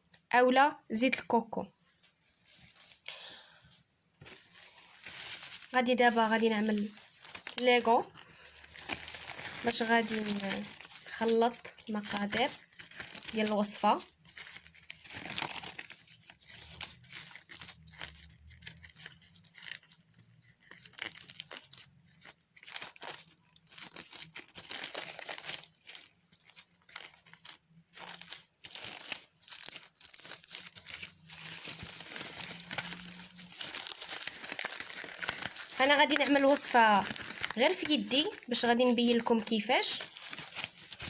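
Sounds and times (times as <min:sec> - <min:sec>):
thin plastic crinkling: 0:01.9 - 0:03.1, 0:04.2 - 0:41.0.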